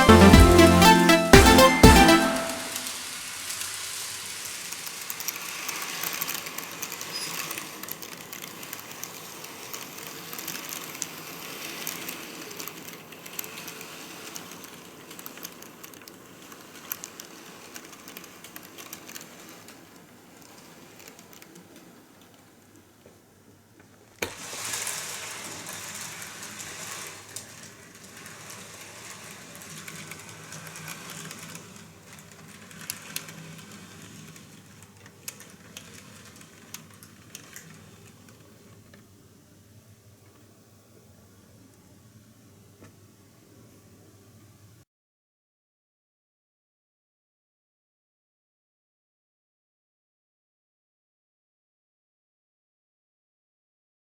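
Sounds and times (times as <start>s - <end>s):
wheels clicking on rails: 0.0s - 39.1s
model train motor whirring: 2.7s - 22.4s, 24.2s - 38.1s.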